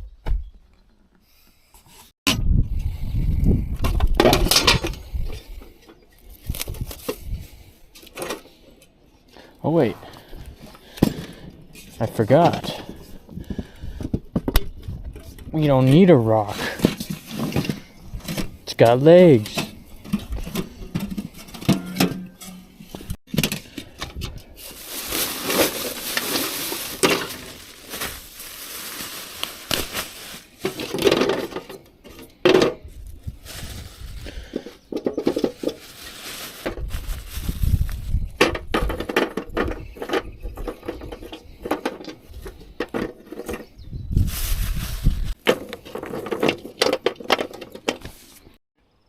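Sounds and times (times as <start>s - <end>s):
scraping: 10.2s - 48.6s.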